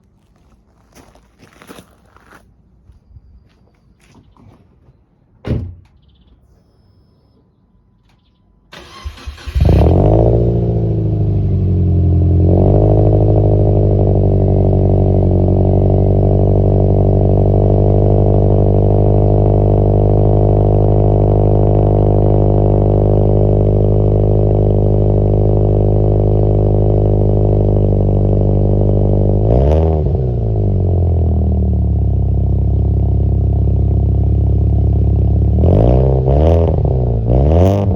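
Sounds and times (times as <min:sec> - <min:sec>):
car engine starting and idling: 0:08.0 - 0:37.9.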